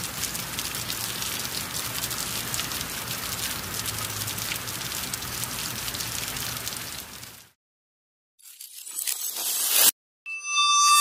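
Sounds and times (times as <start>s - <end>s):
rain falling steadily: 0.0s - 7.6s.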